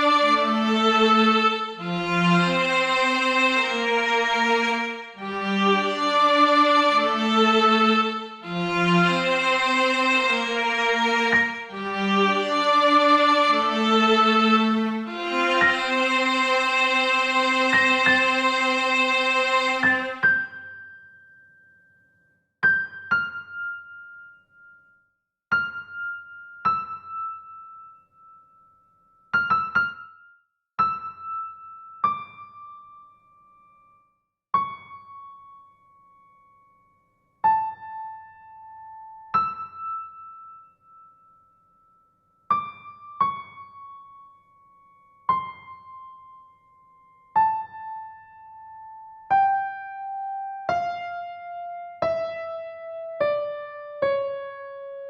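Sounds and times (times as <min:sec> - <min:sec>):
slow solo piano melody: 0:22.6 - 0:24.9, 0:25.5 - 0:28.4, 0:29.2 - 0:33.6, 0:37.4 - 0:41.1, 0:42.5 - 0:55.0.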